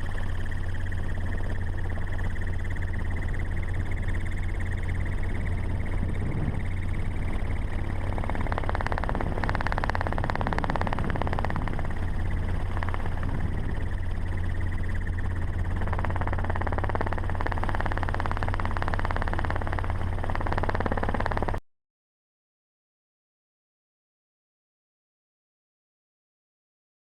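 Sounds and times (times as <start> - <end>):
vehicle engine humming: 0.0 - 21.6.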